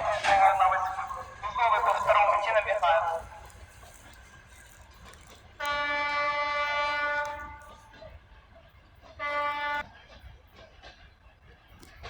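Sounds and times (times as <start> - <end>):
locomotive horn blasts: 5.6 - 7.8, 9.2 - 9.8.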